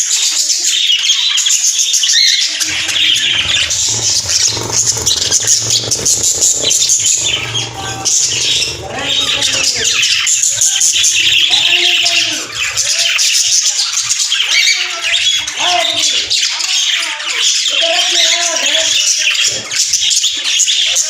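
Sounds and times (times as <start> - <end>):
birds chattering and squawking: 0.0 - 21.0
low swooping bird calls: 2.1 - 17.1.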